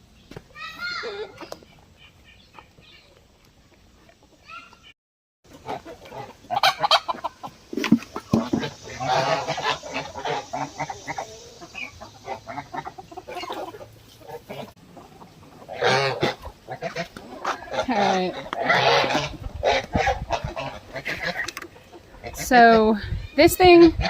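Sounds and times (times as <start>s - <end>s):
geese chickens and ducks calling: 0.6s - 24.0s.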